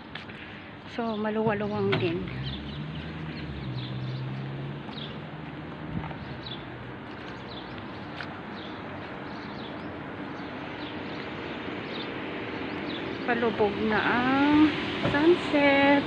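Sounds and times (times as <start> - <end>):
small birds chirping: 0.2 - 14.8.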